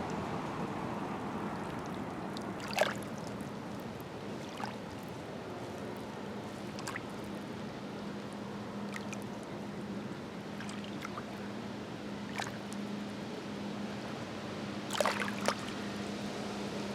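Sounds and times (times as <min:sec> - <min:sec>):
lake waves lapping on shore: 0:01.1 - 0:13.0, 0:14.8 - 0:15.9
sharp water splashes: 0:01.5 - 0:05.1, 0:06.6 - 0:07.4, 0:08.9 - 0:09.4, 0:10.5 - 0:11.4, 0:12.3 - 0:12.8, 0:14.9 - 0:15.8.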